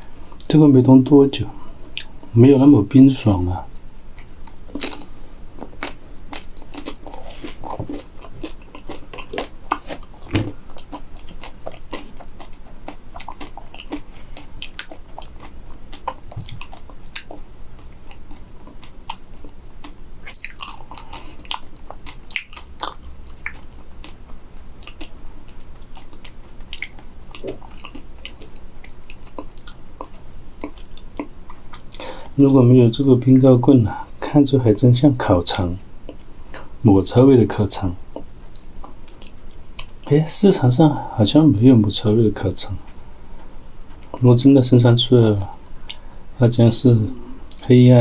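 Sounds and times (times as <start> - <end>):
person chewing crunchy food: 3.8 - 32.4, 36.0 - 36.7, 38.0 - 40.1, 45.6 - 46.2.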